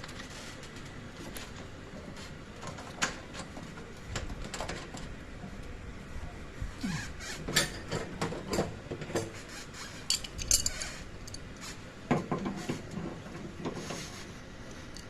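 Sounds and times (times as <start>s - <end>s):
metal tools clinking: 10.1s - 11.4s.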